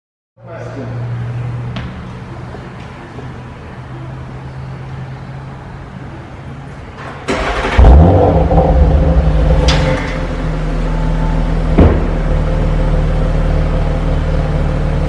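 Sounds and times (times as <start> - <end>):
car engine starting and idling: 6.6 - 15.0.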